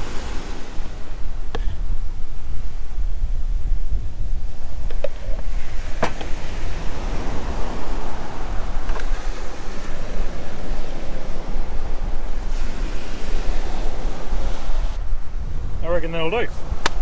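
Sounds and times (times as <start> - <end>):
surf breaking on beach: 0.0 - 1.9, 5.4 - 15.0
wind noise on microphone: 0.0 - 17.0.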